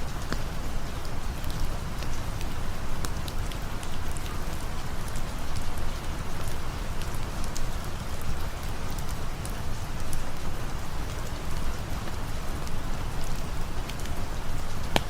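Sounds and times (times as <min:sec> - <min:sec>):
rain hiss: 0:00.0 - 0:15.0
raindrops ticking: 0:00.0 - 0:15.0.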